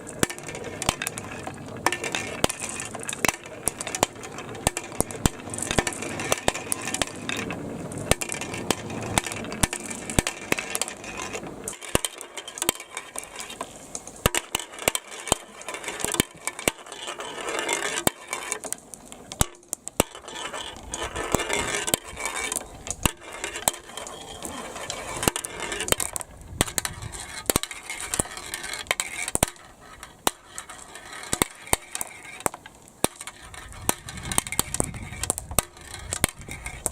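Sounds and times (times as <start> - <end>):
plastic balls clattering on track: 0.0 - 36.9.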